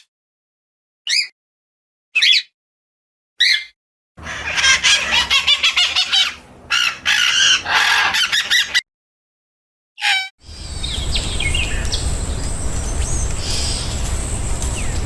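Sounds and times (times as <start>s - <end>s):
bird calls: 3.4s - 8.8s, 10.0s - 15.0s
clamour of many birds calling: 4.2s - 8.8s, 10.4s - 15.0s.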